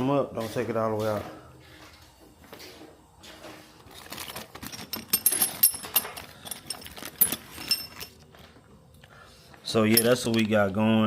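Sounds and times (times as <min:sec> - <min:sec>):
metallic clinks of sockets: 0:09.9 - 0:10.4.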